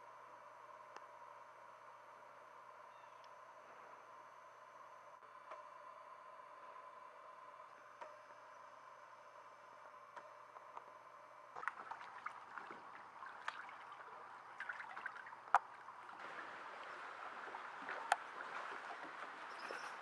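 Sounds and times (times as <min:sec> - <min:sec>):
sharp drips landing: 0:11.6 - 0:20.0
steady rain: 0:16.2 - 0:20.0.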